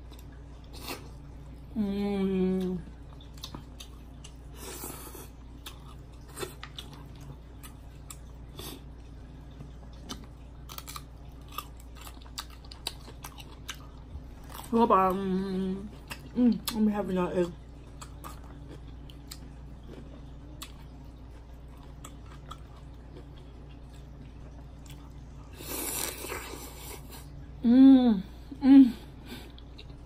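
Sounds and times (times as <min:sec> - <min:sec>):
wet chewing: 0:02.6 - 0:15.2, 0:15.9 - 0:16.8, 0:17.6 - 0:27.2
person humming mmm: 0:27.6 - 0:29.4.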